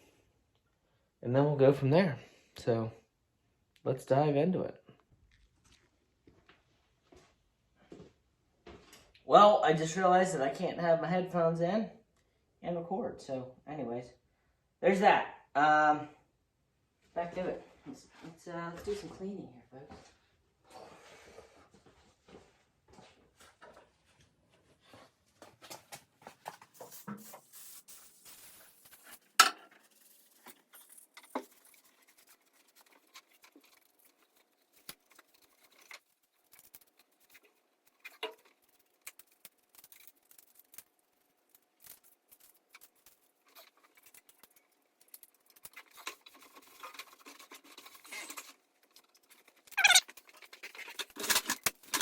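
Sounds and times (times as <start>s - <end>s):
clicks scrapes and knocks: 29.0s - 52.0s.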